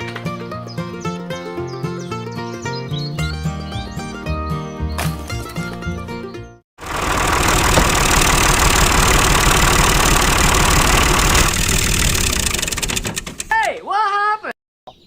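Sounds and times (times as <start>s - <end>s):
small motor rattling and hissing: 6.8s - 13.5s.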